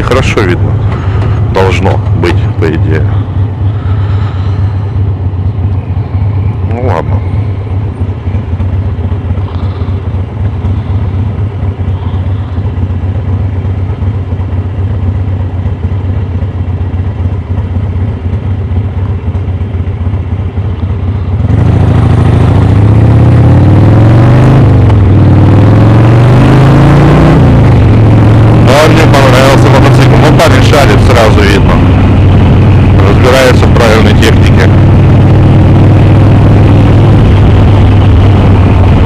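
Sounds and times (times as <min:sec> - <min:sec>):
motorcycle engine: 0:00.0 - 0:39.0
wind rush in helmet: 0:34.7 - 0:39.0.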